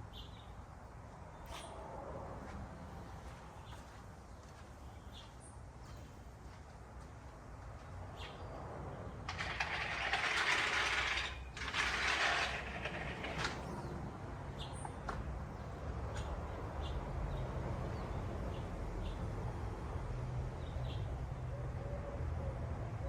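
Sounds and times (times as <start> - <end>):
small birds chirping: 0.0 - 1.8, 3.1 - 6.3, 8.1 - 8.6, 13.6 - 19.3.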